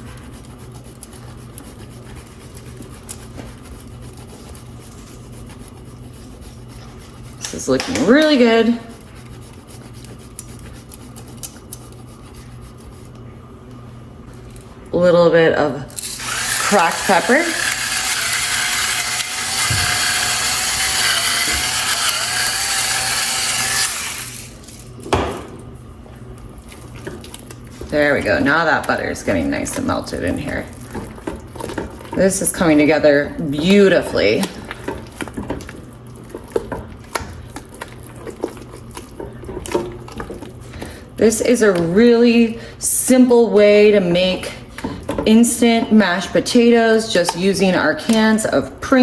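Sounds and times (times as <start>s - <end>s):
cheese scraping on a grater: 0.0s - 13.1s, 16.0s - 24.8s
low steady hum: 0.0s - 49.0s
pepper grinder grinding: 15.9s - 24.9s.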